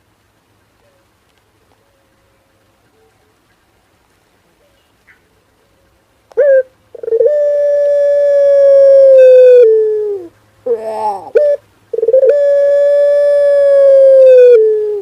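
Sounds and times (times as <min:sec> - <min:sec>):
dove cooing: 0:05.6 - 0:15.0.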